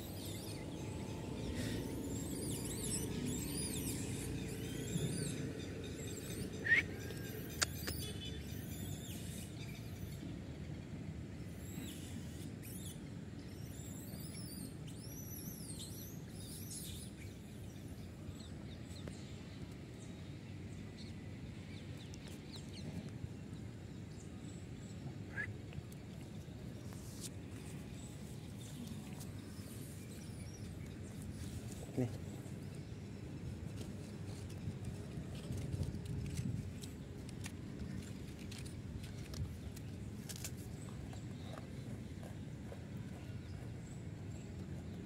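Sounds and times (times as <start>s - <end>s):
low outdoor rumble: 0.0s - 11.4s
birds chirping: 24.0s - 34.8s.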